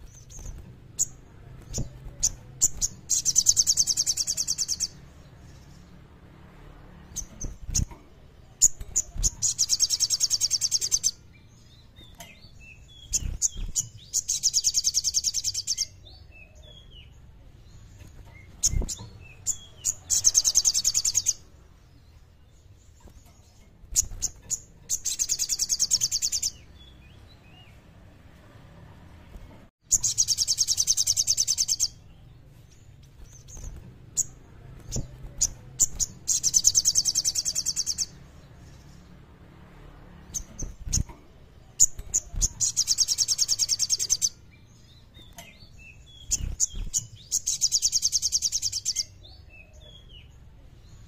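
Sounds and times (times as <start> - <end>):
bird singing high fast trills: 2.2 - 5.8, 8.6 - 11.9, 12.6 - 16.0, 18.4 - 21.5, 23.9 - 27.6, 29.9 - 32.2, 33.2 - 38.4, 41.8 - 45.1, 45.8 - 49.6.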